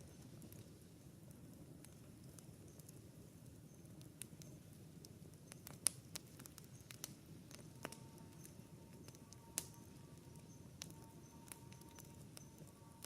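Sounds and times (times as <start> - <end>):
campfire crackling: 0.0 - 13.0
sharp pops of fire: 0.0 - 13.0.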